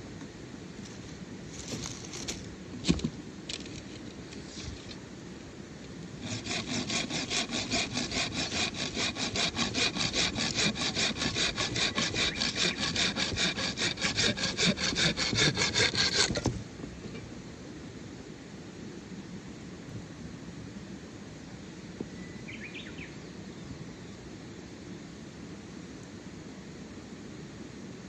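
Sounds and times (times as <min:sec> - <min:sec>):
hand saw cutting wood: 0:06.2 - 0:16.6.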